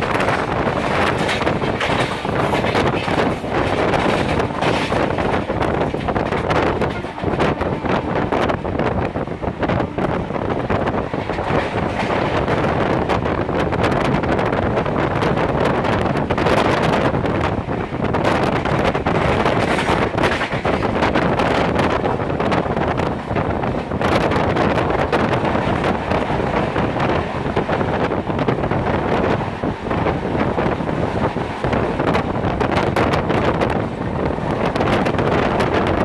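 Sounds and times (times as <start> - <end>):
express train running: 0.0 - 36.0
wind buffeting microphone: 0.0 - 36.0.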